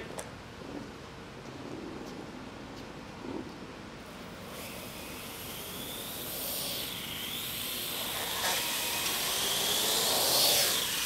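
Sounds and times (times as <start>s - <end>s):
drone rotors whirring: 4.1s - 11.0s.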